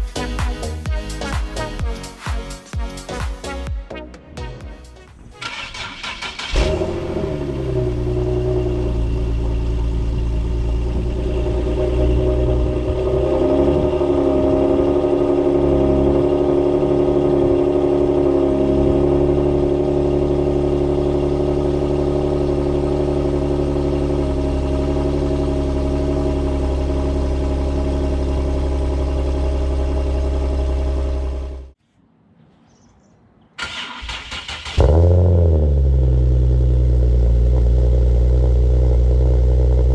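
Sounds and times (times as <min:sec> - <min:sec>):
starter motor cranking: 0:05.4 - 0:06.9
car engine idling: 0:05.4 - 0:31.8, 0:33.8 - 0:39.9.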